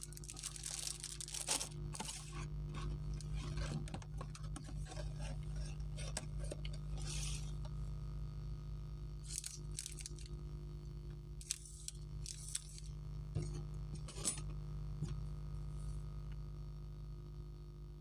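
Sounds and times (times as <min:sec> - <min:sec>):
chocolate wrapper crinkling: 0:00.0 - 0:03.9, 0:09.2 - 0:10.3, 0:11.4 - 0:12.9
low electrical hum: 0:00.0 - 0:18.0.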